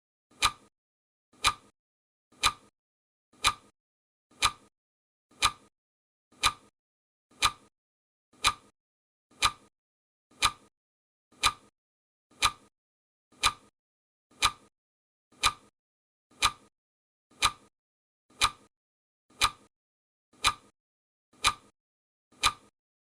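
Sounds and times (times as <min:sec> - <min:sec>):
clock ticks: 0:00.3 - 0:00.7, 0:01.4 - 0:01.7, 0:02.4 - 0:02.7, 0:03.4 - 0:03.7, 0:04.3 - 0:04.7, 0:05.3 - 0:05.7, 0:06.4 - 0:06.7, 0:07.3 - 0:07.7, 0:08.4 - 0:08.7, 0:09.3 - 0:09.7, 0:10.3 - 0:10.7, 0:11.4 - 0:11.7, 0:12.3 - 0:12.7, 0:13.4 - 0:13.7, 0:14.4 - 0:14.7, 0:15.4 - 0:15.7, 0:16.3 - 0:16.7, 0:17.3 - 0:17.7, 0:18.3 - 0:18.7, 0:19.3 - 0:19.7, 0:20.4 - 0:20.7, 0:21.4 - 0:21.7, 0:22.4 - 0:22.7.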